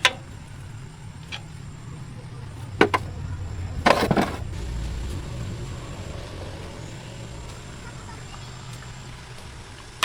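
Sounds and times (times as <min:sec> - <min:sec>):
sharp knocks: 0:02.8 - 0:03.1.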